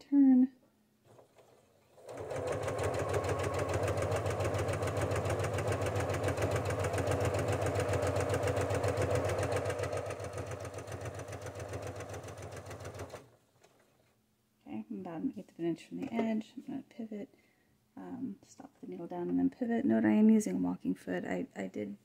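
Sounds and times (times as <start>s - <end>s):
sewing machine rapid clatter: 1.1s - 13.3s.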